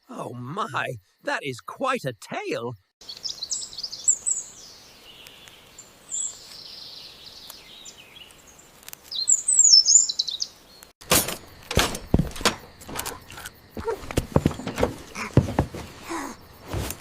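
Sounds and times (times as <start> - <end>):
small birds chirping: 0.0 - 11.6
sharp knocks and thumps: 11.0 - 17.0.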